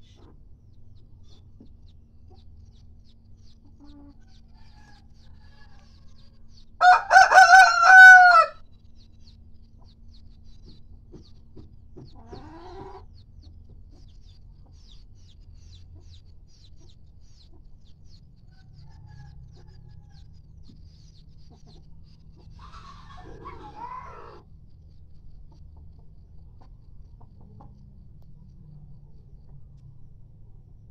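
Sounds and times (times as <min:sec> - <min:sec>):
rooster crowing: 0:06.8 - 0:08.6.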